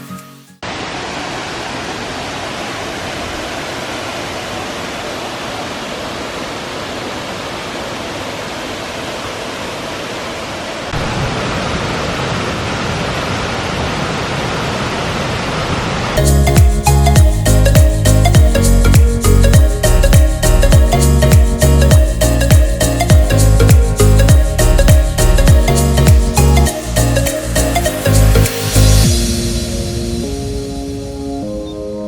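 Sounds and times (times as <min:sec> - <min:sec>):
music: 0:00.0 - 0:00.6, 0:16.2 - 0:32.0
waterfall rushing: 0:00.6 - 0:31.5.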